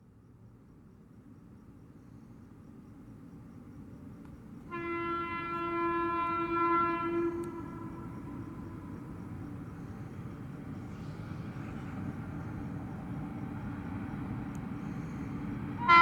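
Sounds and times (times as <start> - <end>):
express train rumble: 0.3 - 16.0
locomotive horn long blast: 4.7 - 9.4, 15.8 - 16.0.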